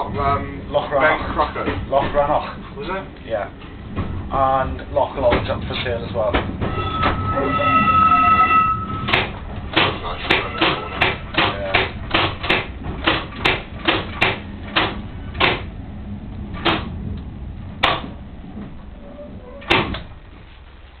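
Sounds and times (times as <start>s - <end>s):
low engine rumble: 0.0s - 21.0s
train wheels clicking over rail joints: 9.0s - 15.8s, 16.4s - 20.5s.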